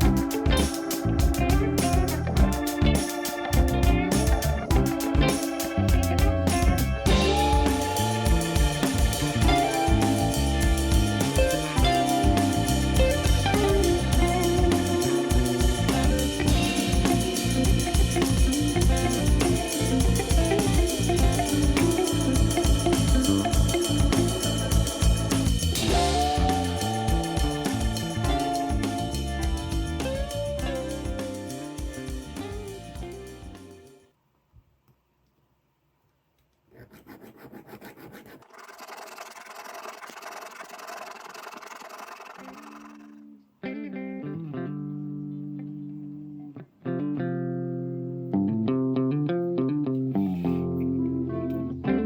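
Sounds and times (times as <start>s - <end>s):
drum beat: 0.0s - 33.8s
guitar: 0.0s - 34.1s, 43.0s - 52.0s
organ: 0.0s - 34.1s.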